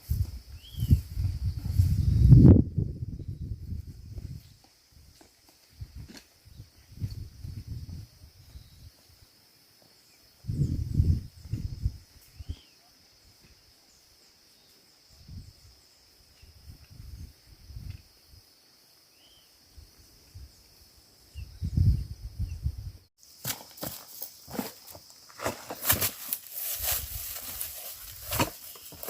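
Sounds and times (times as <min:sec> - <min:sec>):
insects droning: 0:00.0 - 0:29.0
faint chirps: 0:00.5 - 0:02.4, 0:08.4 - 0:22.7
thumps and rustles of movement: 0:23.4 - 0:29.0.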